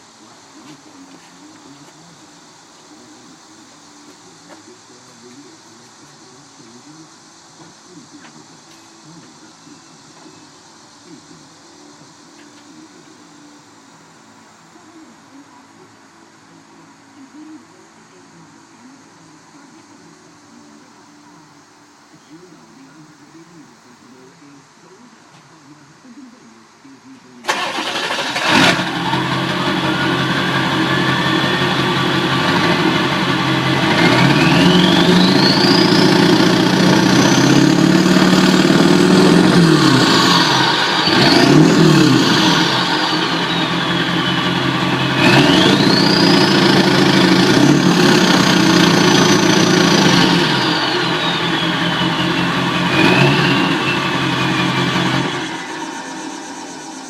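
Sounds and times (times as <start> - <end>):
car engine starting and running: 0.0 - 15.9, 27.2 - 57.0
turbocharger whistle: 27.4 - 57.0.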